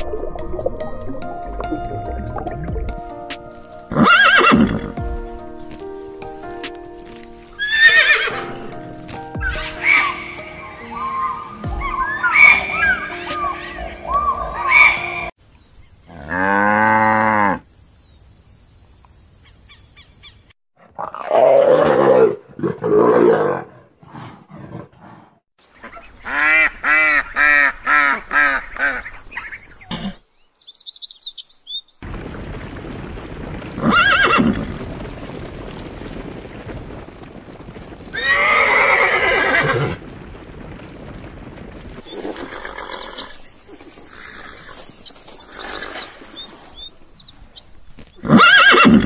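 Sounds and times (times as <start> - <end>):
animal calls: 9.4 - 15.3
ducks quacking: 25.8 - 30.0.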